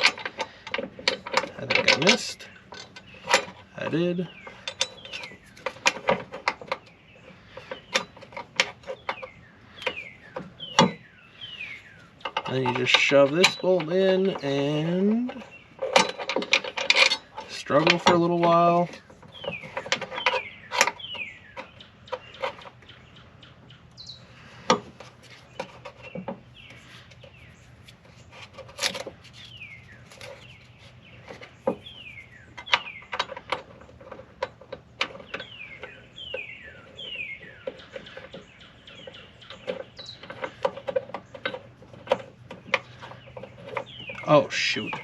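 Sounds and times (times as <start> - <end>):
metal bolt clicking: 0.0 - 11.1, 11.8 - 22.8
bird chirping: 0.0 - 45.0.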